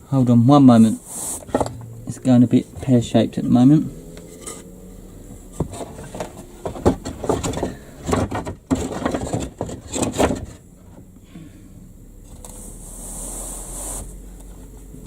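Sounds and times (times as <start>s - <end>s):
wooden knocks and clatter: 1.4s - 3.1s, 5.3s - 11.1s.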